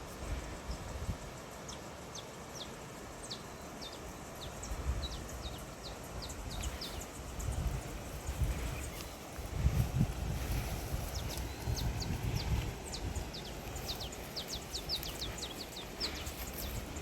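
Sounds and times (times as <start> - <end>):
outdoor hiss: 0.0 - 17.0
small songbirds chirping: 0.0 - 17.0
low gusty rumble: 4.5 - 17.0.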